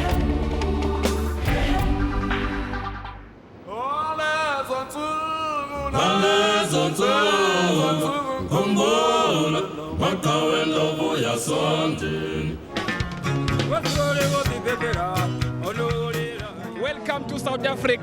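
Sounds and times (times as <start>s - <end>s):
choir singing unaccompanied: 0.0s - 3.2s, 5.6s - 15.1s.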